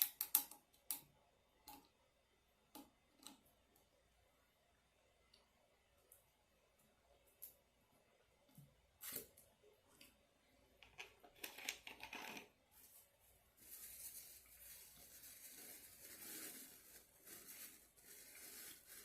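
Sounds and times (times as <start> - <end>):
eating clicks and scrapes: 10.8 - 12.6
soft steady rustling: 12.1 - 19.0.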